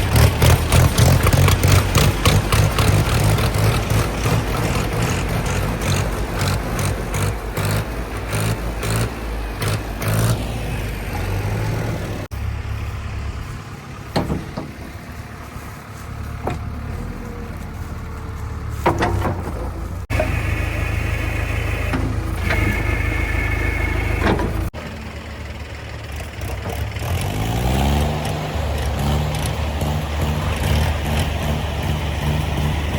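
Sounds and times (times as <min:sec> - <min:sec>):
diesel engines running: 0:00.0 - 0:32.9
engine revving: 0:00.0 - 0:32.9
sharp knocks and clanks: 0:14.1 - 0:15.1, 0:18.8 - 0:20.3.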